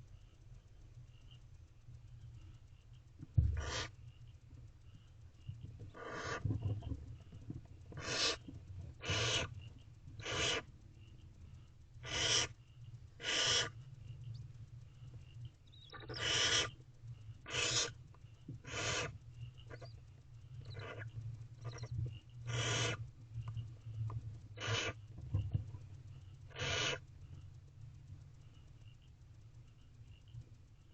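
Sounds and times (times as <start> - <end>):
steady low hum: 0.0 - 30.9
owlets hissing calls: 3.6 - 4.0, 5.9 - 6.6, 8.0 - 9.6, 10.2 - 10.7, 12.0 - 12.6, 13.2 - 13.9, 15.8 - 16.8, 17.4 - 18.0, 18.6 - 20.0, 20.6 - 23.0, 24.5 - 25.0, 26.5 - 27.1.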